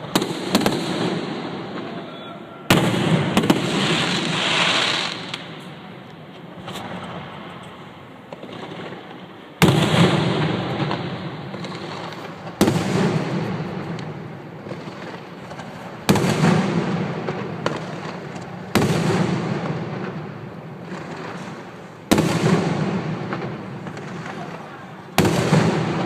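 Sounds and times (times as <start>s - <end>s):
fireworks bangs with echo: 0.0s - 26.0s
faint firework pops: 2.7s - 20.2s.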